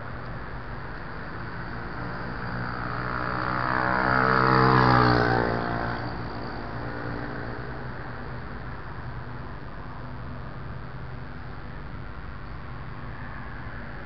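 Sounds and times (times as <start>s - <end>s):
steady background noise: 0.0s - 14.0s
vehicle passing by: 1.6s - 8.6s.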